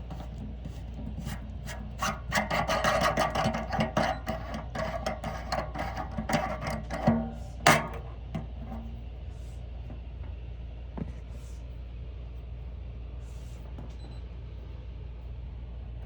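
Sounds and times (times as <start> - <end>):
hands rubbing and scraping plastic: 0.0 - 8.9
steady low hum: 0.0 - 16.0.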